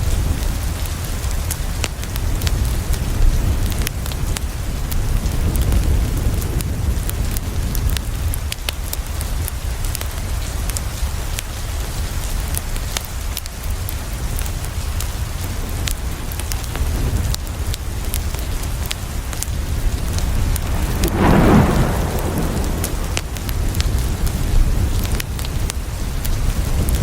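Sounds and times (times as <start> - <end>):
rain on a window: 0.0 - 27.0
wood fire crackling: 19.3 - 24.4
deep low rumble: 19.8 - 24.2.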